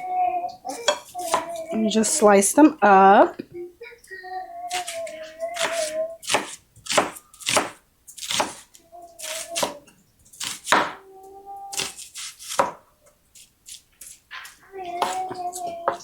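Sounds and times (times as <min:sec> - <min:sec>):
knife chopping on cutting board: 0:00.8 - 0:01.7, 0:05.6 - 0:09.8, 0:10.4 - 0:11.0, 0:11.7 - 0:12.8, 0:13.7 - 0:16.0.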